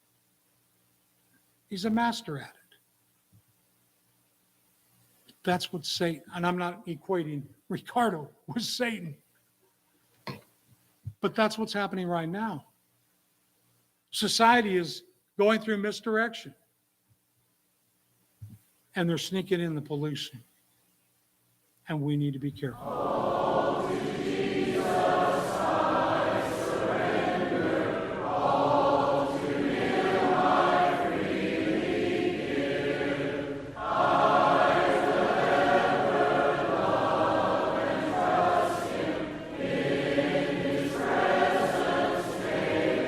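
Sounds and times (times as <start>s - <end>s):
congregation singing a hymn: 22.8s - 43.0s.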